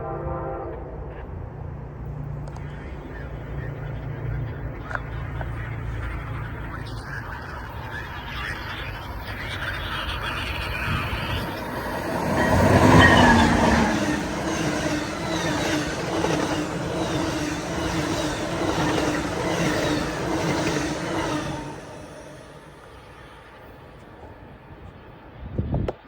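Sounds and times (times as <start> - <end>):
diesel locomotive passing: 0.0 - 25.8
train coaches clattering on rails: 4.8 - 23.1.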